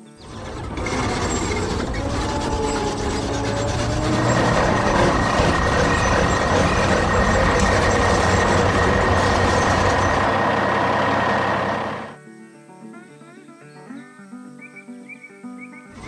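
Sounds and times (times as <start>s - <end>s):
heavy vehicle engine running: 0.0s - 12.2s.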